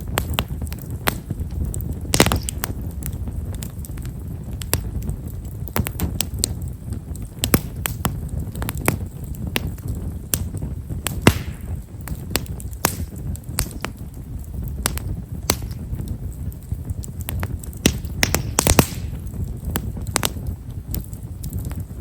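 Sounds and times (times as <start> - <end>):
firewood crackling and popping: 0.0 - 22.0
low rumble of flame: 0.0 - 22.0
pop with short hiss: 11.1 - 11.8.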